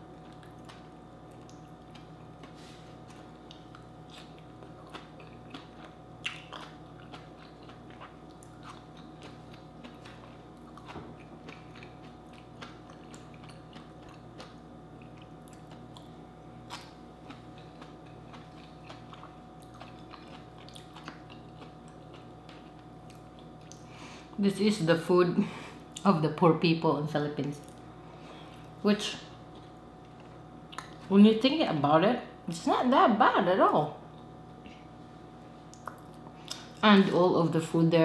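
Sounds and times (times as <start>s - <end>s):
person chewing soft food: 0.0s - 24.4s, 27.6s - 28.8s, 29.4s - 31.1s, 34.1s - 36.8s
faint steady hum: 0.0s - 38.0s
small wet mouth clicks: 35.7s - 36.7s.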